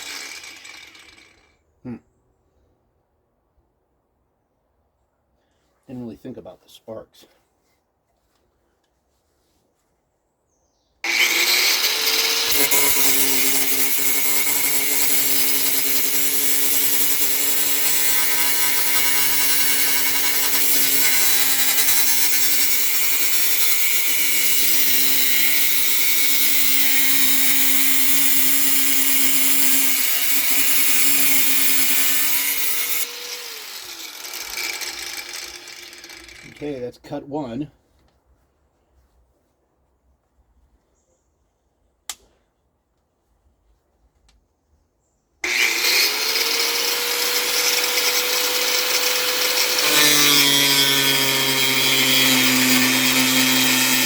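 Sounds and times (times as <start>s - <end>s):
angle grinder cutting sheet metal: 0.0s - 1.3s, 11.1s - 36.7s, 45.4s - 54.0s
motor winding down: 0.0s - 1.4s.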